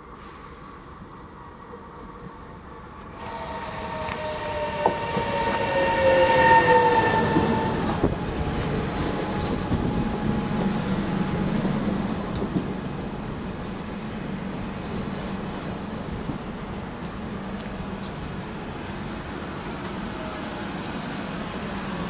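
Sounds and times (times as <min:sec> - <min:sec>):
train carriages rumbling past: 0:02.3 - 0:22.0
train wheel squeal: 0:03.1 - 0:12.0, 0:18.4 - 0:22.0.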